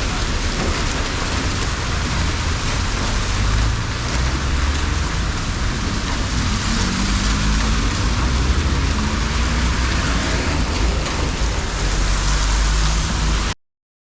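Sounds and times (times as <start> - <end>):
motorcycle engine rumble: 0.1 - 13.5
wind rush on microphone: 0.4 - 13.5.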